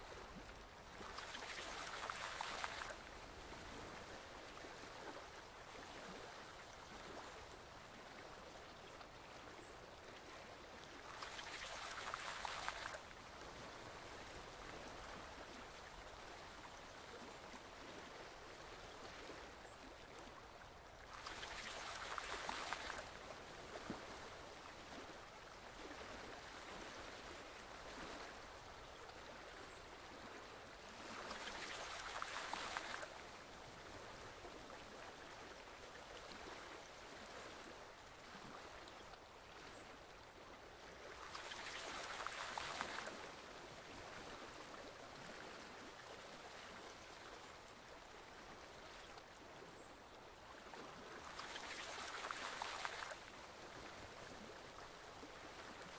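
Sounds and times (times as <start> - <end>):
stream flowing gently: 0.0 - 55.9.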